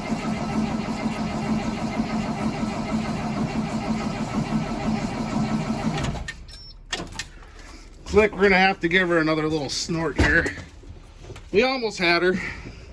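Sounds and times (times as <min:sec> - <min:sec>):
diesel engine starter cranking: 0:00.0 - 0:07.6.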